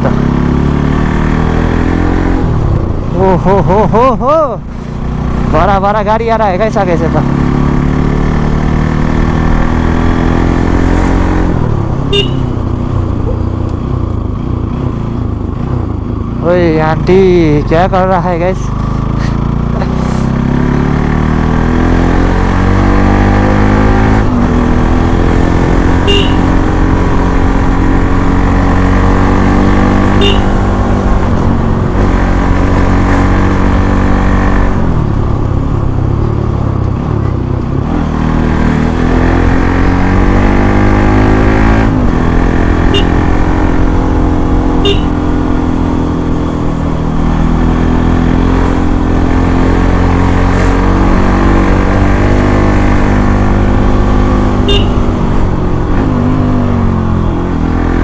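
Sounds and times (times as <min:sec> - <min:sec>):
motorcycle engine accelerating hard: 0:00.0 - 0:58.0.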